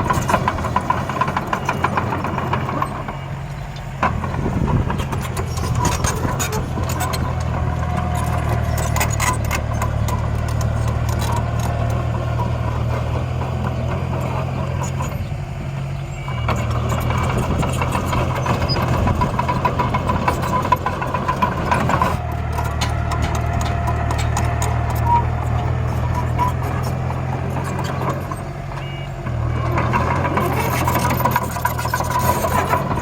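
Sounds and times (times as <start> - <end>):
clicks and rattles: 0.0 - 15.2, 16.5 - 28.5, 29.3 - 33.0
machine engine humming: 0.0 - 33.0.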